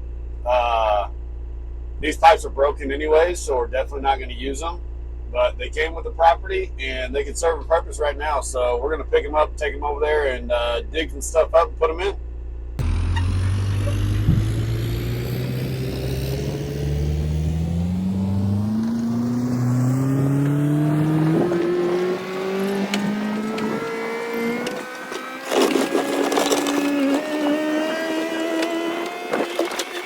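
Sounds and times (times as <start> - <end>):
skid steer engine revving: 12.8 - 30.0.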